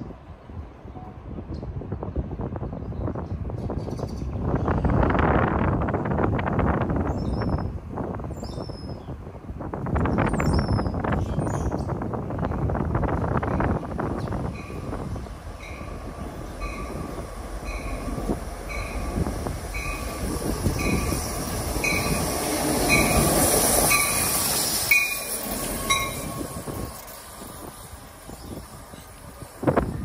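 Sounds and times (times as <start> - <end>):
wheels rumbling on rail: 0.0 - 30.0
train bell ringing: 14.6 - 15.0, 15.6 - 22.3, 22.9 - 26.9
high hiss: 14.8 - 30.0.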